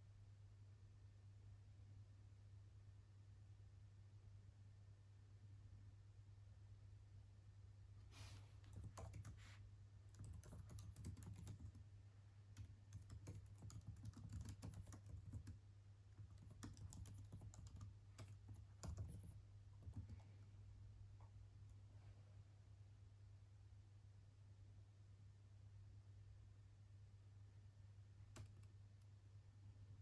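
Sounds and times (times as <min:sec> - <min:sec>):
keyboard typing: 0:08.6 - 0:09.5, 0:10.1 - 0:11.8, 0:12.5 - 0:20.3, 0:28.3 - 0:28.8.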